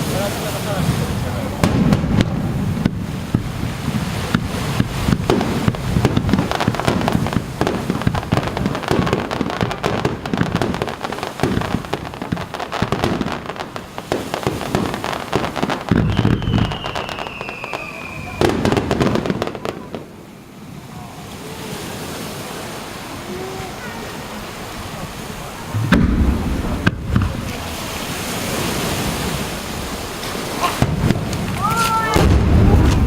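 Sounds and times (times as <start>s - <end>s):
fireworks low booms: 0.0s - 21.6s, 24.6s - 33.0s
fireworks crackling: 0.0s - 33.0s
firework whistle gliding down: 15.9s - 19.8s.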